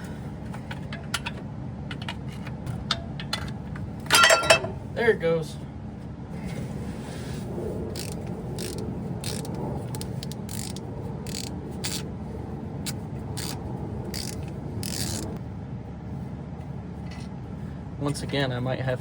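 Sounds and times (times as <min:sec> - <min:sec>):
steady low hum: 0:00.0 - 0:19.0
ratchet wrench clicking: 0:08.0 - 0:12.1, 0:12.8 - 0:15.4.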